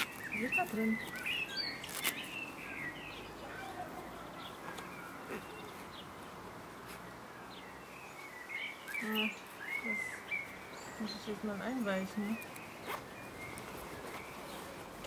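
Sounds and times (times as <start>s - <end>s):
faint outdoor background: 0.0s - 15.0s
small birds chirping: 0.0s - 15.0s.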